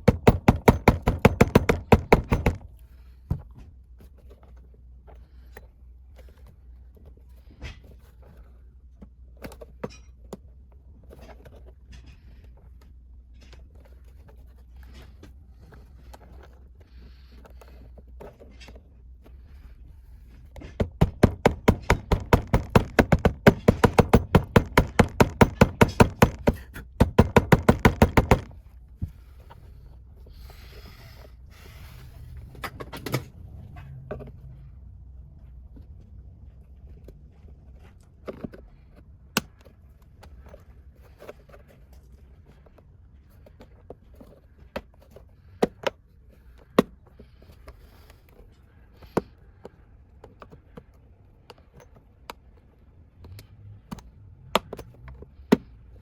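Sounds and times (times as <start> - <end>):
workshop handling knocks: 0.0 - 2.7, 20.6 - 28.6.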